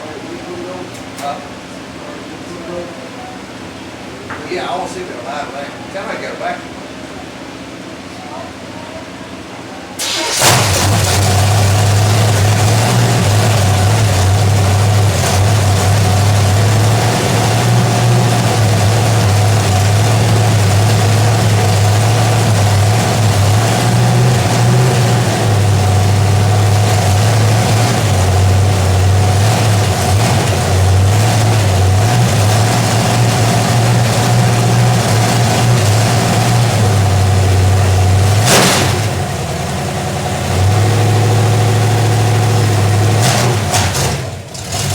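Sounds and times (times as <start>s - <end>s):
loud engine idling: 10.0s - 44.9s
sharp engine crack: 10.0s - 44.9s.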